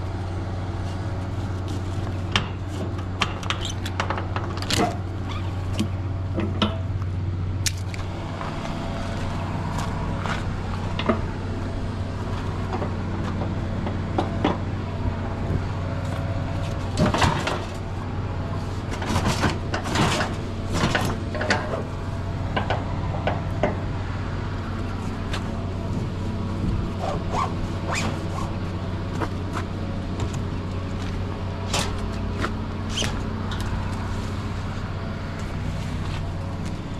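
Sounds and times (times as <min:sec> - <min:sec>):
vehicle engine running: 0:00.0 - 0:36.9
knocks and clatter: 0:16.9 - 0:17.8, 0:18.9 - 0:21.9.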